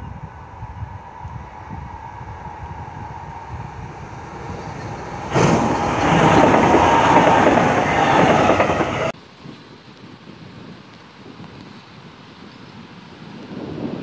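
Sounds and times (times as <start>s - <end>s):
electric train passing: 0.0s - 9.2s
faint wind noise: 0.0s - 14.0s.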